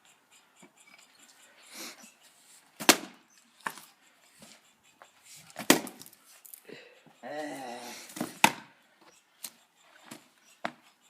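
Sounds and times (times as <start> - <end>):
wood being chopped: 2.8 - 3.8, 5.6 - 6.1, 8.2 - 8.7.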